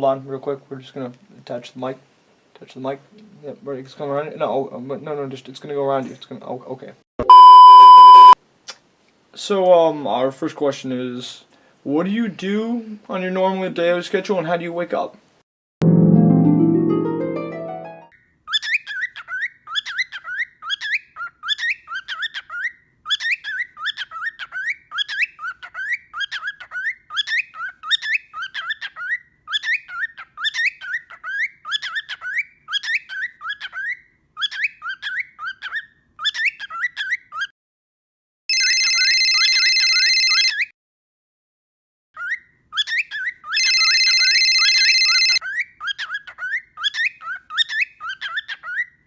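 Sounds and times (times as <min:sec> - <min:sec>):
electronic beep: 0:07.2 - 0:08.4
cockatiel chirping: 0:18.5 - 0:37.5, 0:42.2 - 0:49.0.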